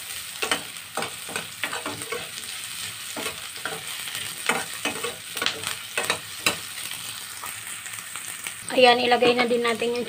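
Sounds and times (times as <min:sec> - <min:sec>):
onions sizzling in hot oil: 0:00.0 - 0:10.0
metal spatula scraping a pan: 0:00.4 - 0:06.9.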